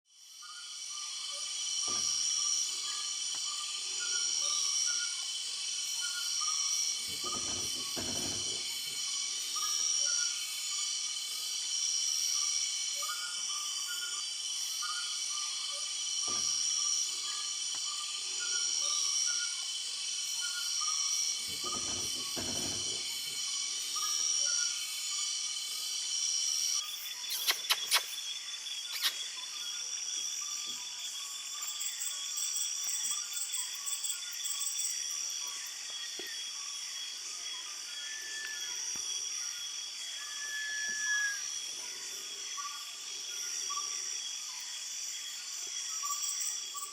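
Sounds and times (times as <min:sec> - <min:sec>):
crickets trilling: 0:00.1 - 0:46.9
short pulsed insect calls: 0:00.1 - 0:46.9
sharp clicks: 0:27.3 - 0:28.2.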